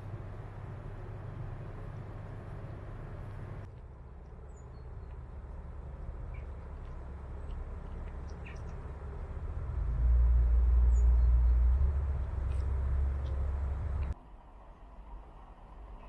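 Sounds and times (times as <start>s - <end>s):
steady low rumble: 5.0s - 16.0s.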